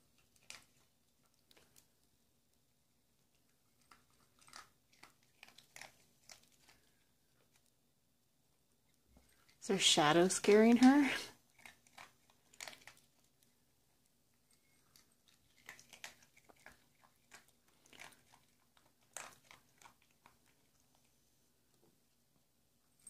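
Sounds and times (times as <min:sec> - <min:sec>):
dog chewing dry kibble: 0:00.1 - 0:02.0, 0:03.2 - 0:07.8, 0:10.4 - 0:21.2.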